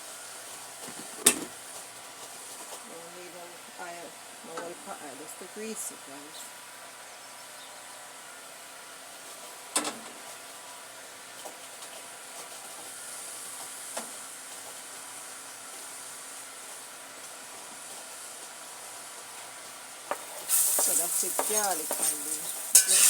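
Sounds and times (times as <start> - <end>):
oil sizzling in a pot: 8.2 - 23.0
sharp clink: 22.8 - 23.0.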